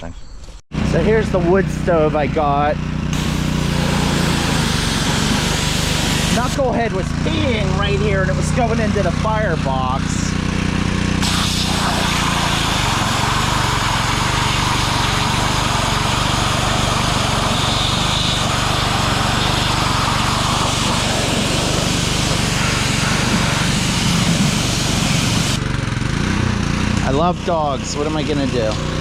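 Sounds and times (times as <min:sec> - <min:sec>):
pressure washer engine humming: 0:00.7 - 0:29.0
high-pressure spray hissing: 0:03.1 - 0:07.9, 0:10.8 - 0:25.6.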